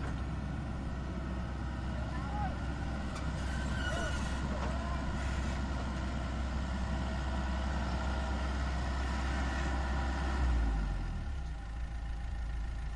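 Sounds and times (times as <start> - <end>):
diesel engine droning: 0.0 - 12.9.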